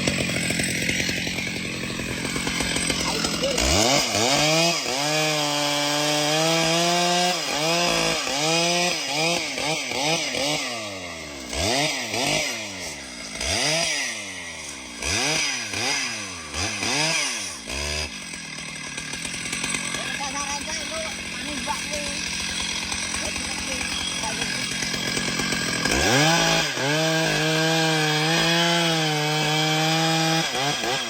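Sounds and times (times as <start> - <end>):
chainsaw cutting tree: 0.0 - 31.0.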